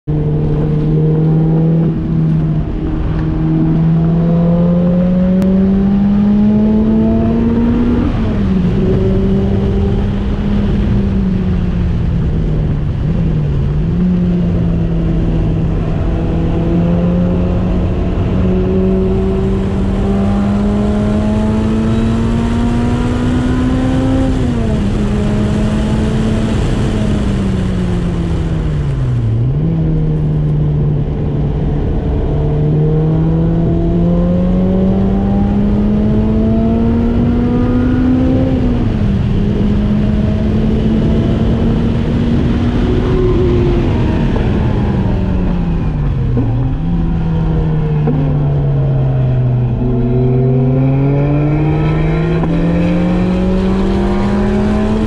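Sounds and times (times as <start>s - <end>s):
car engine revving under load: 0.0s - 55.0s
wind and road noise: 0.0s - 55.0s.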